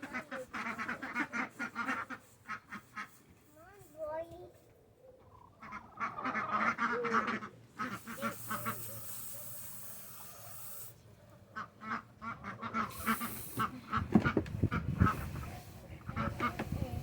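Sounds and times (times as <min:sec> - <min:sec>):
ducks quacking: 0:00.0 - 0:03.3, 0:05.2 - 0:09.1, 0:11.4 - 0:17.0
steady hiss: 0:07.8 - 0:11.0, 0:12.9 - 0:13.7.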